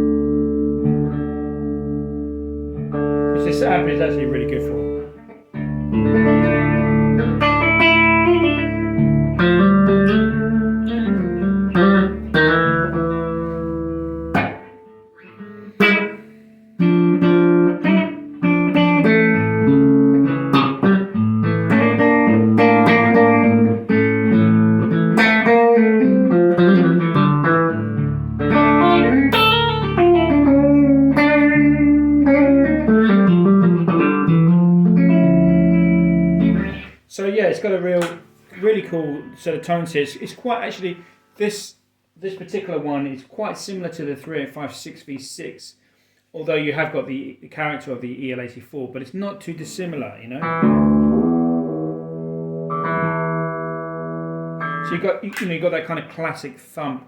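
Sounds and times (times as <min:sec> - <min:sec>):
electric guitar chords and notes: 0:00.0 - 0:37.0, 0:50.4 - 0:55.1
muted guitar strums: 0:00.0 - 0:37.0, 0:37.9 - 0:41.1, 0:50.4 - 0:55.9.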